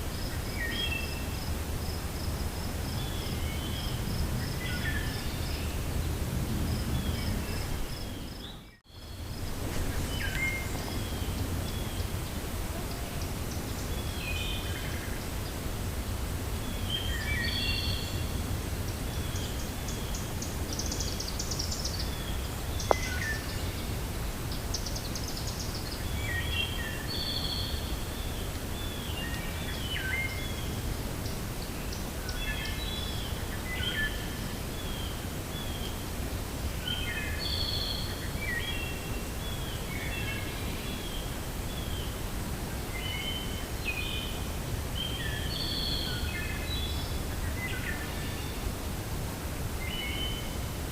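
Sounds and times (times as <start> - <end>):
songbirds chirping: 0.0 - 50.9
wind rumbling: 1.2 - 24.8.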